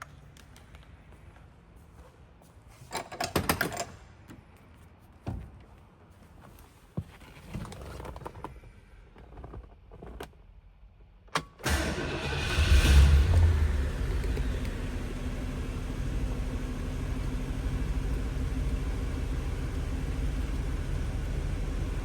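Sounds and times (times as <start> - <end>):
car engine starting and rumbling: 11.4 - 22.0.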